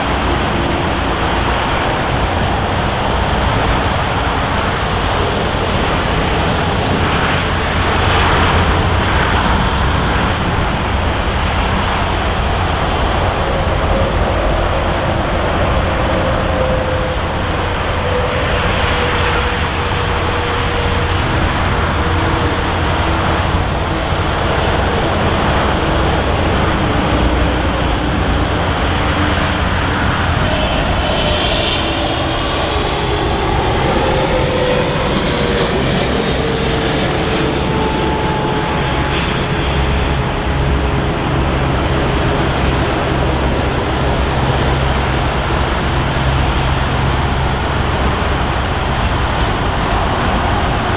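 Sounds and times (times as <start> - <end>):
faint falling whine: 0.0 - 32.4
jet engines roaring: 0.0 - 50.9.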